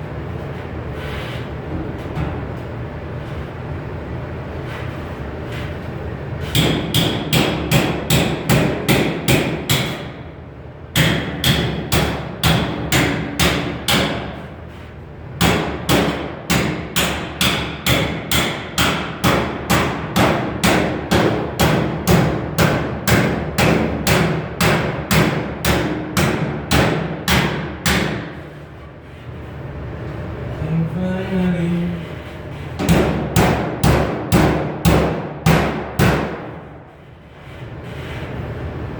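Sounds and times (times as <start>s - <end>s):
hammer striking sheet metal: 6.5s - 10.2s, 11.0s - 14.5s, 15.4s - 28.5s, 32.8s - 36.8s.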